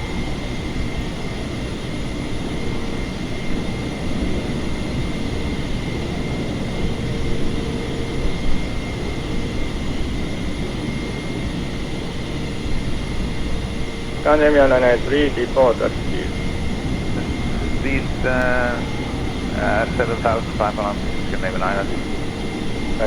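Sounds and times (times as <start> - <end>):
airflow and engine noise: 0.0 - 23.0
faint steady high tone: 13.2 - 23.0.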